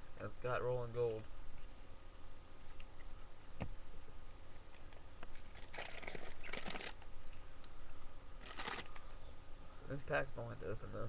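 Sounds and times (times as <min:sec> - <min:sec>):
wrapper crinkling and tearing: 0:05.3 - 0:07.1, 0:08.4 - 0:09.0.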